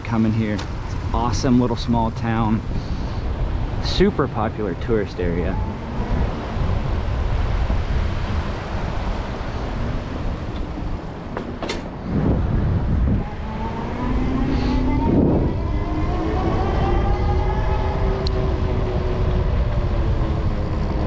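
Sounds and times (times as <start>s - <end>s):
wind rumbling on microphone: 0.0s - 21.0s
motor hum rising in pitch: 13.0s - 19.2s.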